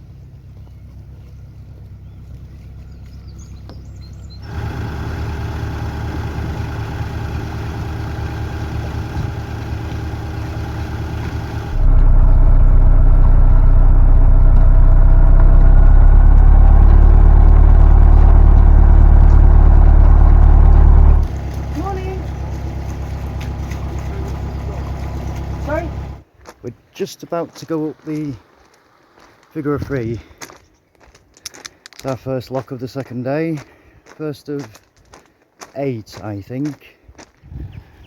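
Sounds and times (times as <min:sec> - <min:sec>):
boat engine running: 0:00.0 - 0:26.2.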